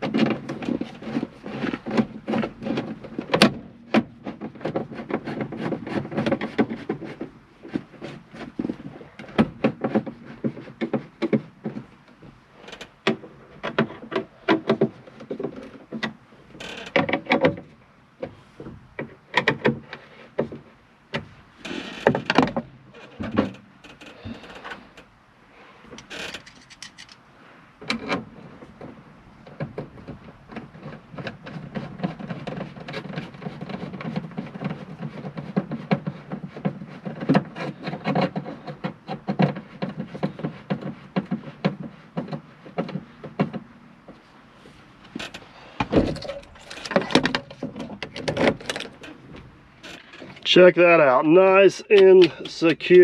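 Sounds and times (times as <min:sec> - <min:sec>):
clicks and knocks of tools: 0:25.9 - 0:27.2.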